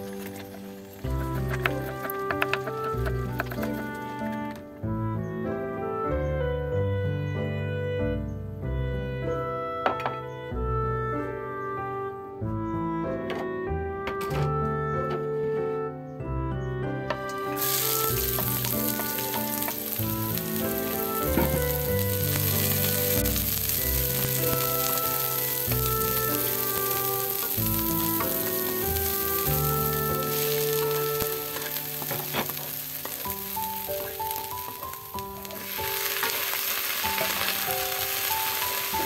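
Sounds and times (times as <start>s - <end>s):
piano-like background music: 0.0s - 39.0s
vegetables sizzling in hot oil: 17.6s - 39.0s.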